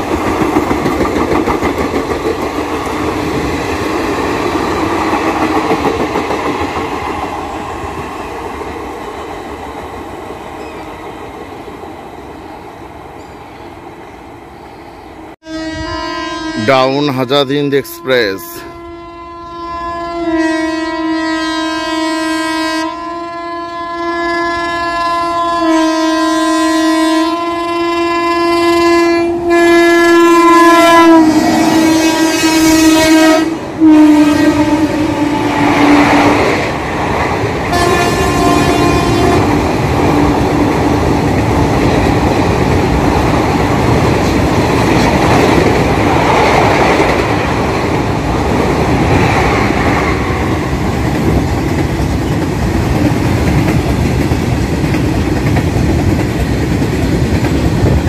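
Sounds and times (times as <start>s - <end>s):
train wheels clattering on rails: 0.0s - 9.0s, 36.3s - 58.0s
locomotive horn blasts: 15.4s - 35.8s, 37.7s - 39.6s.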